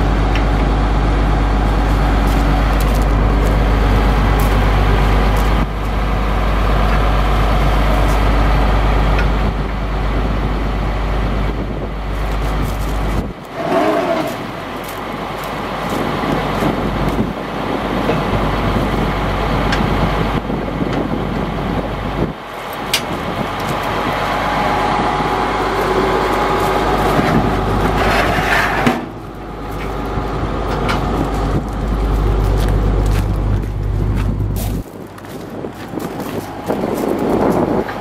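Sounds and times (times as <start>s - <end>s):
truck engine rumbling: 0.0s - 38.0s.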